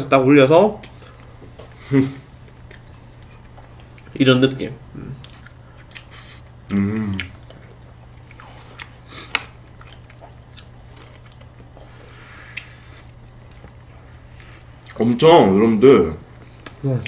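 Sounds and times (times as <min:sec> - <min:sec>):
chewing and biting: 0:02.5 - 0:04.1, 0:05.2 - 0:11.9, 0:12.5 - 0:15.0
person humming: 0:06.7 - 0:07.3.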